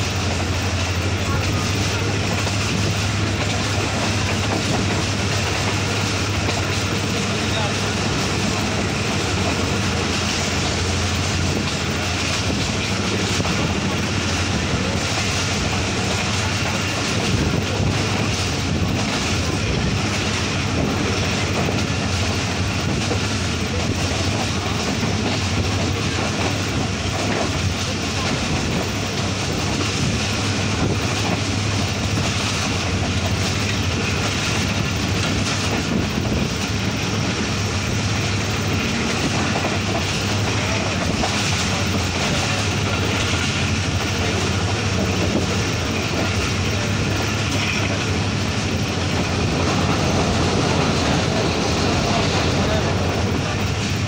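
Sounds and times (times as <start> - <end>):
train wheels rolling on rails: 0.0 - 54.0
wind rushing past: 48.1 - 54.0.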